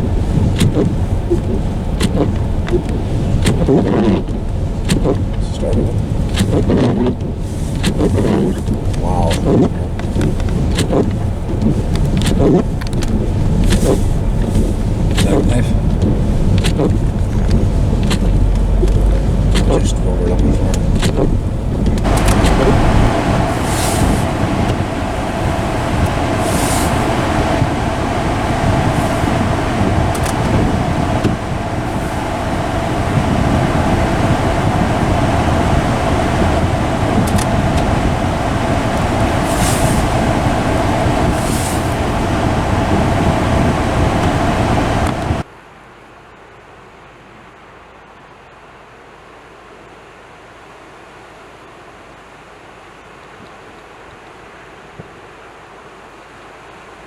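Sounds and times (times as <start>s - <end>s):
tyres swishing through snow: 0.0s - 45.4s
car engine and tyres drone: 0.0s - 45.5s
quiet steady hiss: 0.0s - 47.4s.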